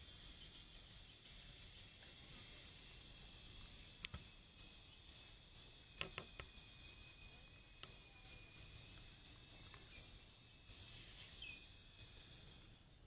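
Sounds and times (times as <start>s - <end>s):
bird chirping: 0.0s - 0.6s, 1.5s - 5.8s, 6.6s - 11.8s
insects droning: 0.0s - 13.0s.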